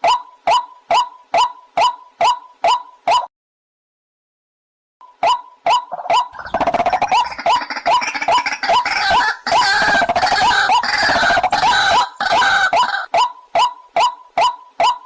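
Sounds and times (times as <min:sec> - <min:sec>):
waterhen calling: 0:00.0 - 0:03.3, 0:05.2 - 0:15.0
overlapping bird calling: 0:05.2 - 0:15.0.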